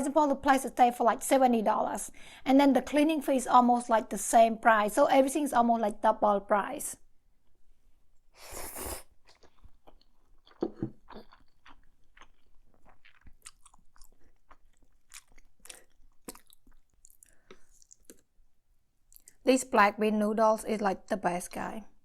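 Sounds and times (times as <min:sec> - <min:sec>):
chewing mouth clicks: 0:09.2 - 0:18.3.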